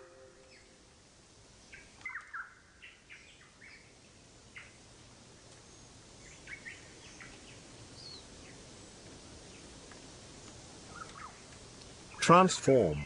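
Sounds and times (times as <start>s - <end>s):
faint bird chirps: 0.0s - 0.8s, 1.6s - 4.8s, 5.6s - 9.7s, 10.3s - 11.5s
low background hiss: 0.0s - 13.0s.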